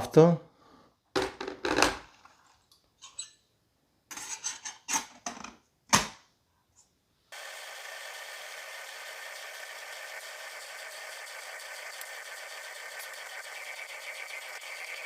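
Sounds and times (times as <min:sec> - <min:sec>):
kettle heating hiss: 0:07.3 - 0:15.0.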